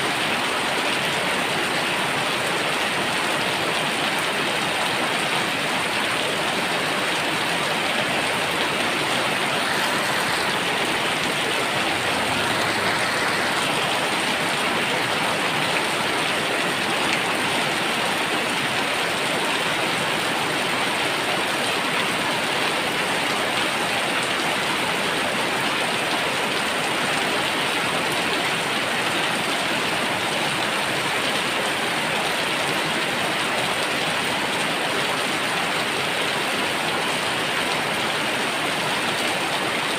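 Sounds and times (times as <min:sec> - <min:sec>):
heavy rain on the ground: 0:00.0 - 0:39.9.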